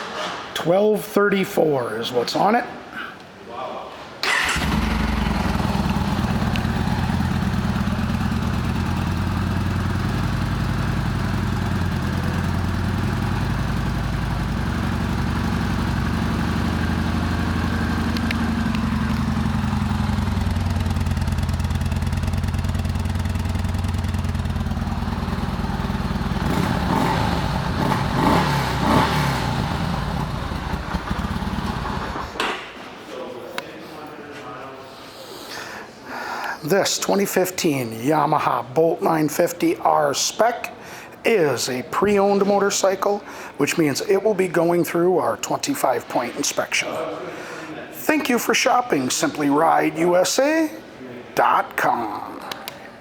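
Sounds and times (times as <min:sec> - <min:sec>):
motorcycle engine idling: 0:04.4 - 0:32.3.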